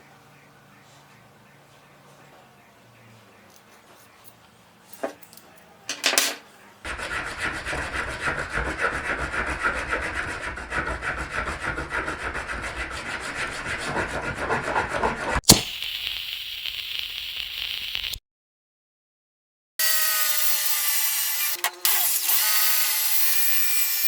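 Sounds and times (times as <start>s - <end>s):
hand tool rasping on plastic pipe: 6.9s - 15.4s.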